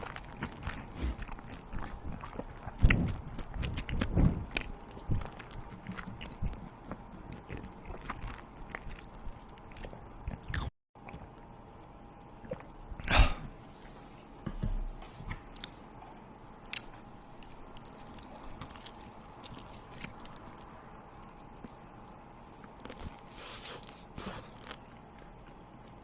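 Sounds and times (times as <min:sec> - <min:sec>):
chewing and biting food: 0:00.0 - 0:11.5, 0:16.7 - 0:26.0.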